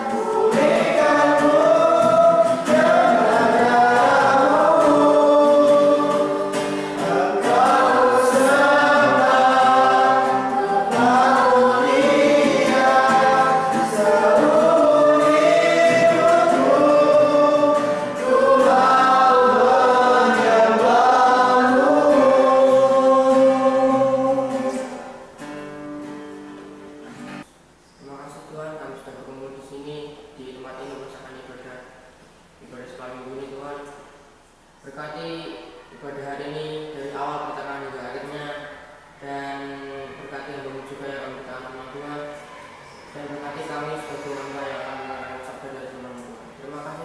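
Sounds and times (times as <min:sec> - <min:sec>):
group singing worship song: 0:00.0 - 0:25.4.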